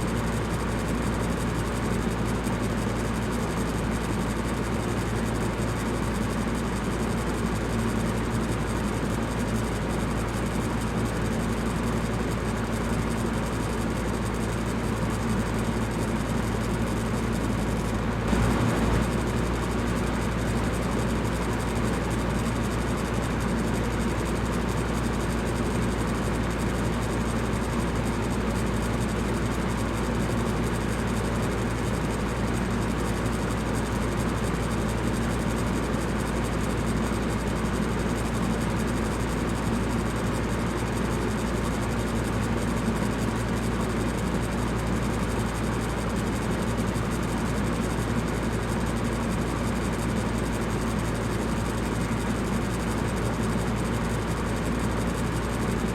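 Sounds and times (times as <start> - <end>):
electric fan running: 8.0 - 33.0.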